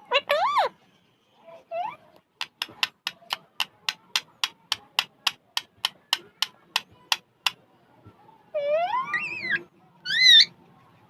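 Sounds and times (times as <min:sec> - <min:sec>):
parrot clicking: 0:02.4 - 0:07.6.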